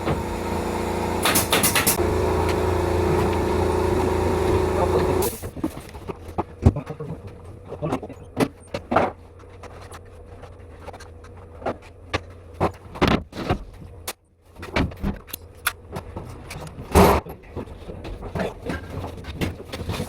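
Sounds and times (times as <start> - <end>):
steady low hum: 0.0 - 5.5
carpentry knocks and clicks: 1.2 - 2.0.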